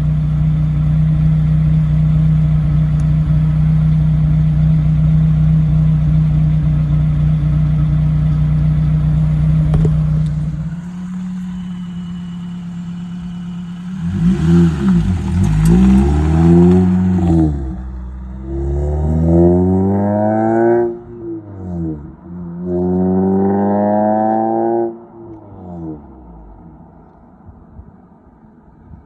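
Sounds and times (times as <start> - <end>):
car engine idling and revving: 0.0 - 28.9.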